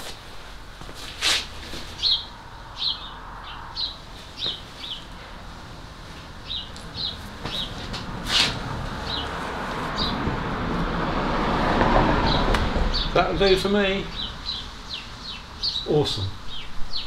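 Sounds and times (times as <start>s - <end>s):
small bird chirping: 1.9s - 5.1s, 14.0s - 17.0s.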